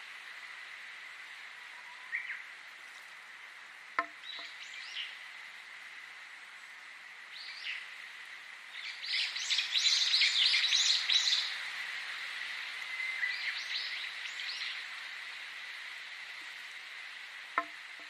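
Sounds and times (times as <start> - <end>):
faint steady hiss: 0.0 - 18.0
small songbirds chirping: 1.7 - 3.0, 4.0 - 5.5, 6.2 - 11.6, 12.7 - 15.2.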